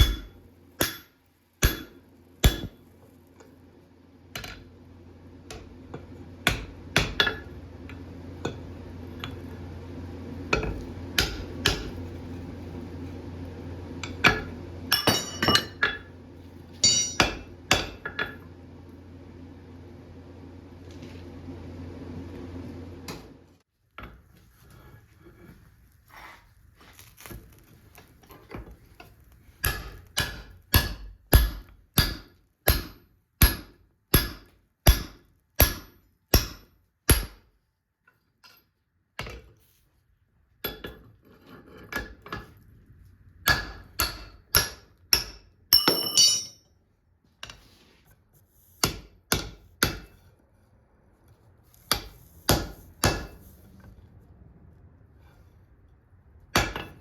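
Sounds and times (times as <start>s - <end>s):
hammer blows on anvil: 16.8s - 18.3s, 43.5s - 46.6s.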